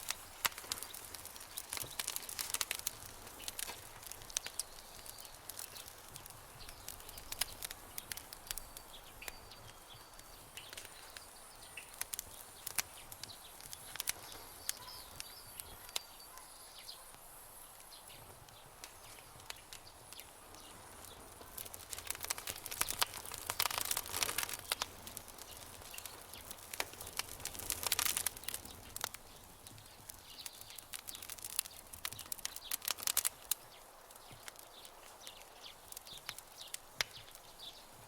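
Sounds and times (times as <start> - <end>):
campfire crackling: 0.0 - 38.0
faint bird chirps: 6.6 - 17.2.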